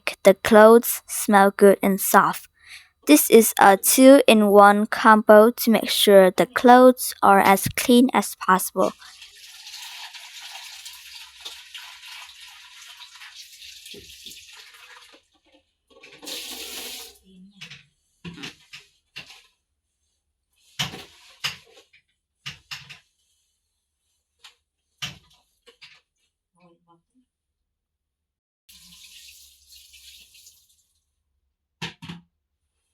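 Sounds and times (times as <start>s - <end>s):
wet laundry splashing in water: 9.0s - 15.3s.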